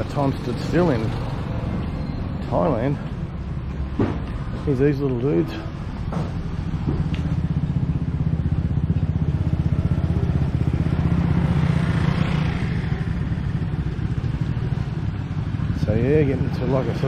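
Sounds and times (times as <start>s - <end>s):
motorbike engine running: 5.7s - 17.0s.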